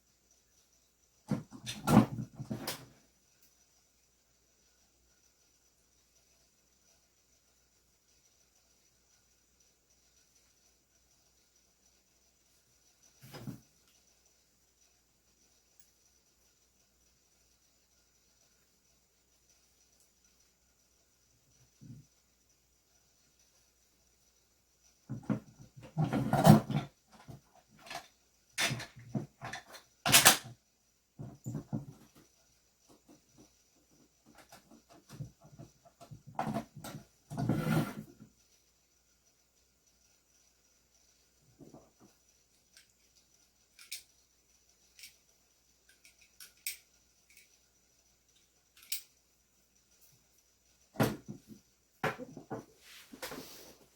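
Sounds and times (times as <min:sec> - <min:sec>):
clicks and taps of small parts: 0:27.1 - 0:30.6, 0:41.6 - 0:44.2, 0:44.9 - 0:47.6, 0:48.3 - 0:49.2
knocks on a bench: 0:52.0 - 0:52.6.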